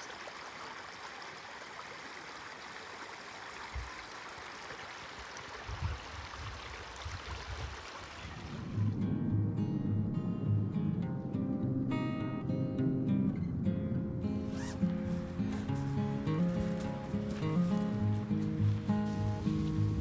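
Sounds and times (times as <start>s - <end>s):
acoustic guitar music: 8.8s - 20.0s
steady rushing outdoor noise: 13.4s - 20.0s.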